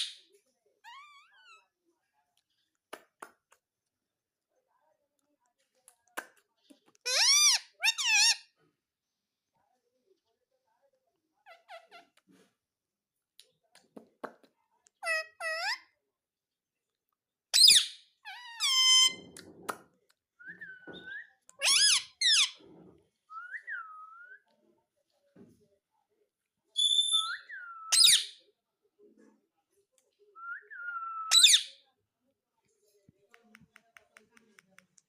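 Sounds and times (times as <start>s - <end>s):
parakeet squawking and whistling: 7.0s - 8.5s, 17.6s - 19.3s, 26.8s - 28.3s, 30.6s - 31.8s.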